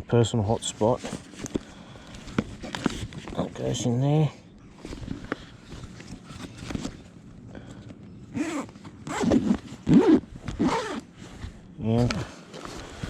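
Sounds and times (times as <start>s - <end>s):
zipper being pulled: 8.3s - 13.0s.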